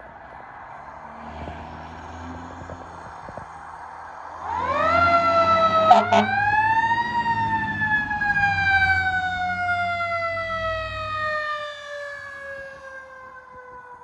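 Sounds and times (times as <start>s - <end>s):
truck engine rumble: 2.0s - 11.4s
fire truck siren winding down: 4.3s - 14.0s.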